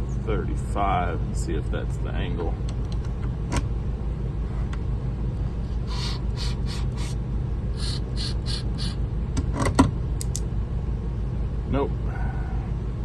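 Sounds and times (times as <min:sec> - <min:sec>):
sharpening machine motor humming: 0:05.8 - 0:07.2, 0:07.8 - 0:09.0.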